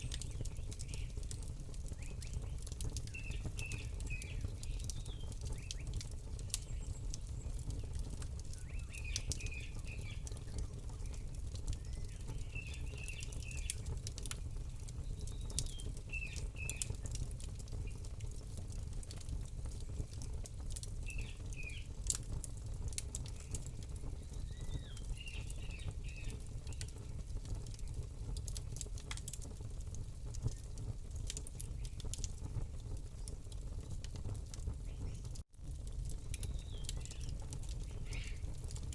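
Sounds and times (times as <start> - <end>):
small bird chirping: 0.0 - 13.9, 23.3 - 27.1, 36.3 - 38.5
campfire crackling and popping: 0.0 - 38.9.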